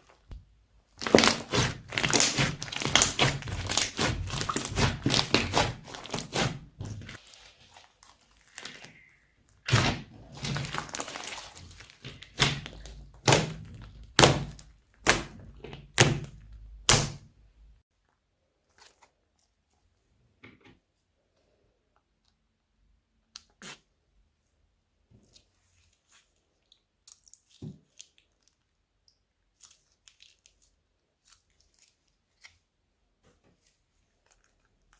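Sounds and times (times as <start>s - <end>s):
slime slapping and squishing: 1.0s - 8.9s, 9.6s - 17.3s.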